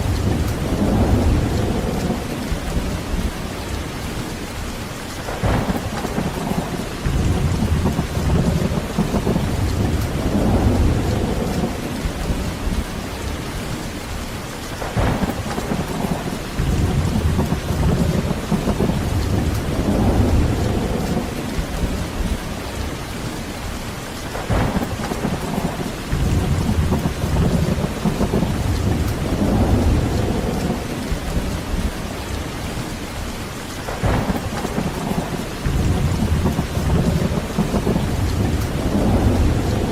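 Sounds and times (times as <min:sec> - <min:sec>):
rolling thunder: 0:00.0 - 0:04.3, 0:05.3 - 0:13.9, 0:14.8 - 0:23.4, 0:24.2 - 0:33.0, 0:33.8 - 0:39.9
heavy rain: 0:00.0 - 0:39.9
sharp thunder crack: 0:05.3 - 0:12.2, 0:14.8 - 0:21.8, 0:24.3 - 0:31.9, 0:33.9 - 0:39.9.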